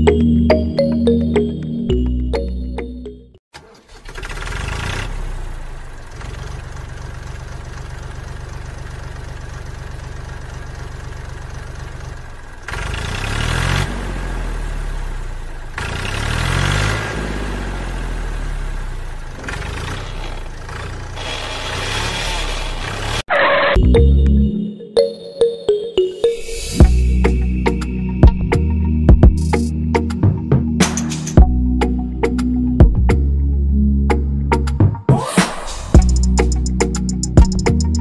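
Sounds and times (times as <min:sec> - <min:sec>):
tractor engine chugging and revving: 0:00.0 - 0:24.5, 0:36.0 - 0:38.0.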